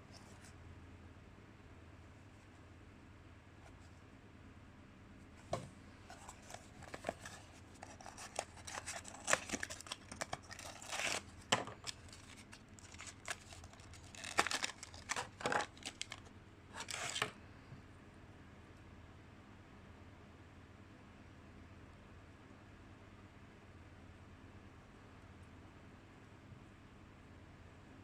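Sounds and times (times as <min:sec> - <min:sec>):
box and plastic rustling: 0:05.4 - 0:17.4
packaging clicks and scrapes: 0:06.1 - 0:17.4.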